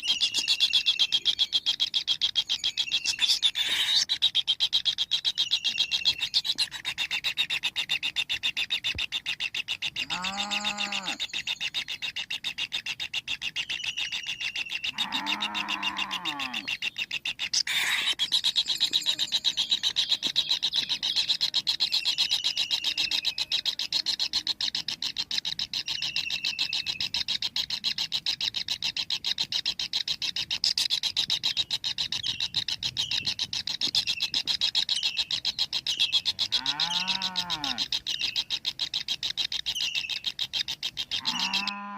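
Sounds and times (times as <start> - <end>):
low rising and falling animal call: 10.0 - 11.2, 14.9 - 16.7, 36.4 - 37.9, 41.2 - 41.9.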